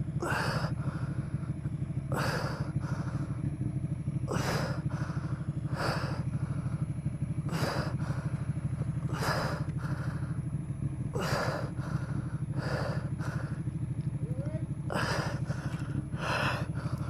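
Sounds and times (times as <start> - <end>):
motorcycle engine idling: 0.0 - 17.0
person gasping: 0.2 - 3.3, 4.3 - 6.7, 11.2 - 13.7, 14.9 - 17.0.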